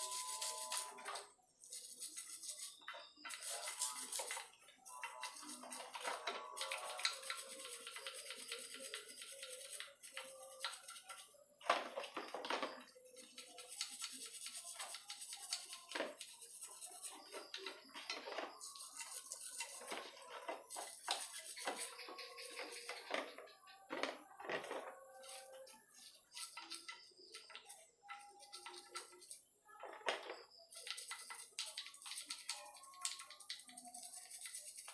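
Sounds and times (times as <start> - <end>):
brush scrubbing metal part: 1.6 - 11.3, 18.6 - 23.2.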